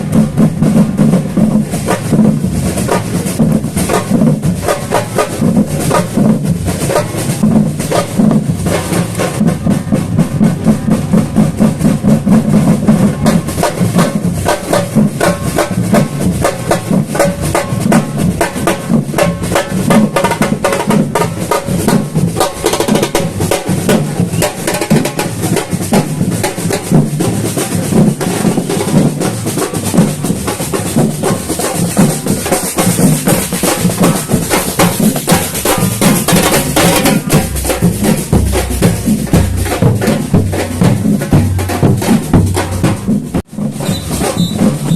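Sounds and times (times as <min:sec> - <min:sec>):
deep bass drums: 0:00.0 - 0:44.9
snares and hand percussion: 0:00.0 - 0:44.9.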